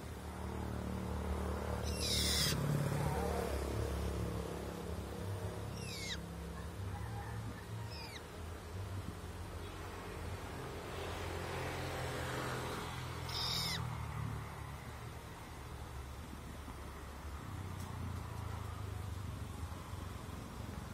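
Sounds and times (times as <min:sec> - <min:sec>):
bird harsh scratchy call: 0:01.8 - 0:02.6, 0:05.7 - 0:06.2, 0:13.3 - 0:13.9.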